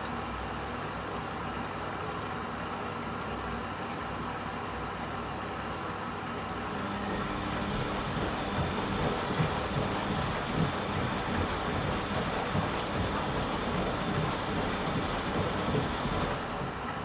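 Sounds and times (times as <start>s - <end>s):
washing machine running: 6.4s - 17.0s.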